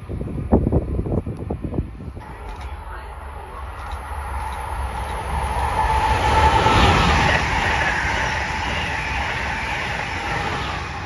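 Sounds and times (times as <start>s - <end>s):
high-speed train passing: 0.0s - 11.0s
steady whine: 2.2s - 11.0s.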